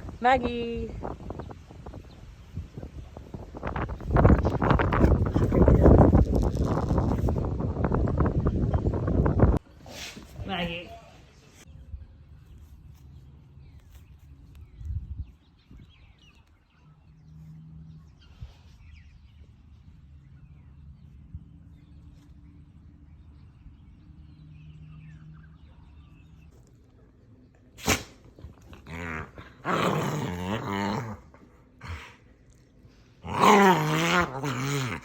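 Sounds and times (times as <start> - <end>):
dog growling: 27.9 - 32.3, 33.2 - 35.0.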